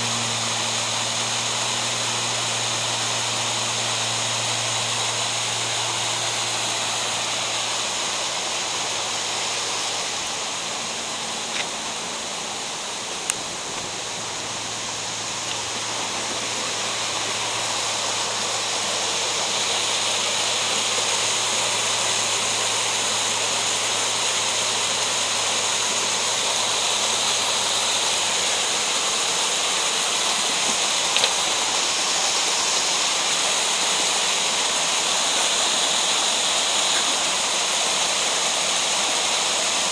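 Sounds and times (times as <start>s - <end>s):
low steady drone: 0.0s - 37.5s
stream rushing over rocks: 0.0s - 39.9s
faint clicks: 30.6s - 31.4s.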